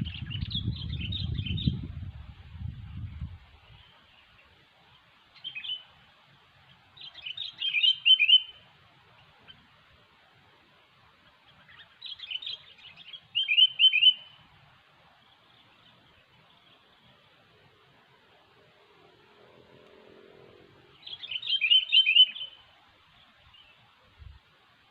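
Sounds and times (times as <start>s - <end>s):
bird singing: 0.0s - 1.9s, 3.0s - 6.0s, 6.6s - 9.8s, 11.2s - 14.5s, 15.1s - 17.4s, 18.2s - 24.0s.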